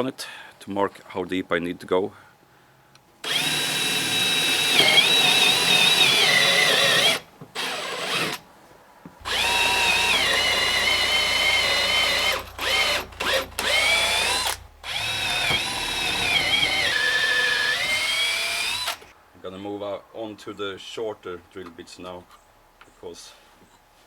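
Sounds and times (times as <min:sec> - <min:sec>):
electric drill boring into wood: 0:03.2 - 0:08.4, 0:09.2 - 0:19.1.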